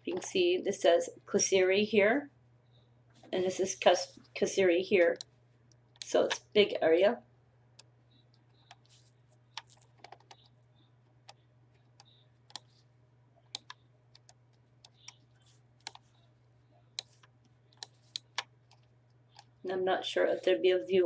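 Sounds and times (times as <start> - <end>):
faint low hum: 0.0 - 21.0
keyboard and mouse clicking: 9.5 - 10.5, 11.2 - 12.8, 13.4 - 15.2, 15.8 - 16.2, 17.0 - 19.5.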